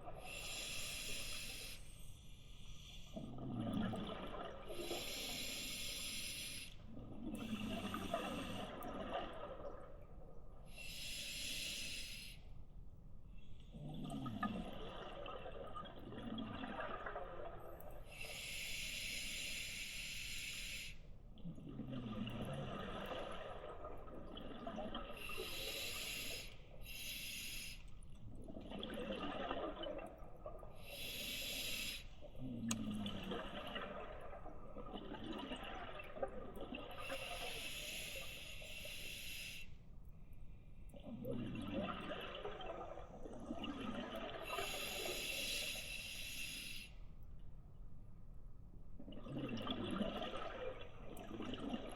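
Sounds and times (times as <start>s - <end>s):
regulator air hiss on inhale: 0.2s - 3.2s, 4.8s - 6.8s, 10.7s - 12.4s, 18.1s - 21.0s, 25.2s - 27.8s, 30.8s - 32.2s, 37.0s - 39.8s, 44.5s - 47.0s
exhaled bubbles gurgling: 3.0s - 12.2s, 13.7s - 39.6s, 40.9s - 46.8s, 49.0s - 51.9s.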